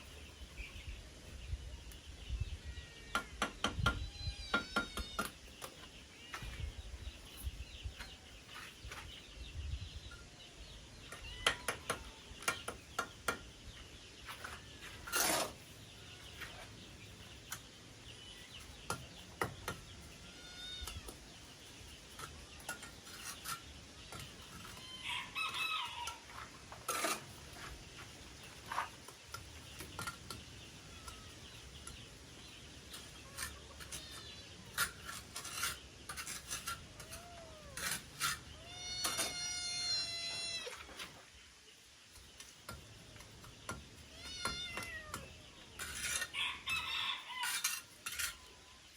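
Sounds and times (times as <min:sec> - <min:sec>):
sharp knocks and taps: 0:03.1 - 0:06.5
chickens clucking: 0:10.1 - 0:41.4
rooster crowing: 0:24.9 - 0:26.3, 0:46.3 - 0:47.7.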